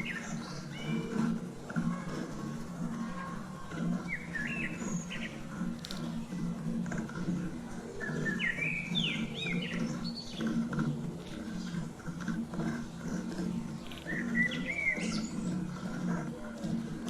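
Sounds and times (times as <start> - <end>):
bird chirping gliding notes: 0.0 - 1.4, 3.3 - 6.4, 8.0 - 10.7, 12.7 - 16.2.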